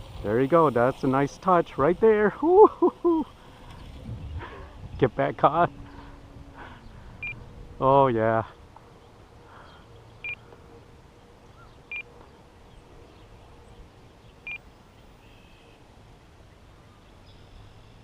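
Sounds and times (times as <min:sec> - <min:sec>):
short electronic beeps: 0:07.2 - 0:07.4, 0:14.4 - 0:14.6.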